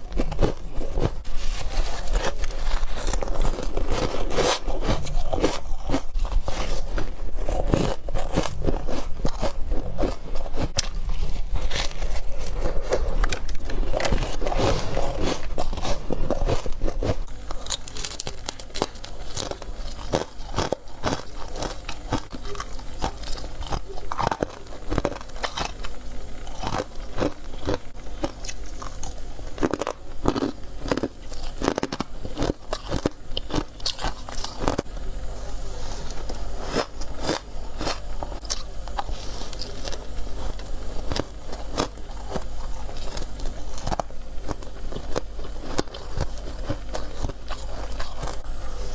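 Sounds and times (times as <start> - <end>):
person crunching ice: 0.0 - 34.9.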